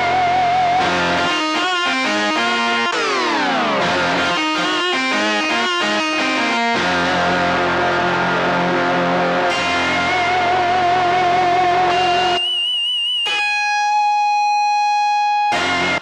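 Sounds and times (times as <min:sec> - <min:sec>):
synthesizer held chord: 0:00.0 - 0:12.5
synthesizer plucked guitar-like notes: 0:00.0 - 0:16.0.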